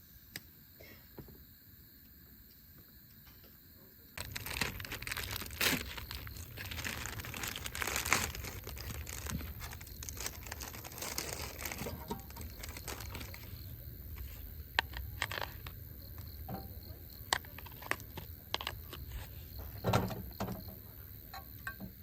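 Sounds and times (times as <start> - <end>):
crinkling and rustling: 4.2 - 20.8.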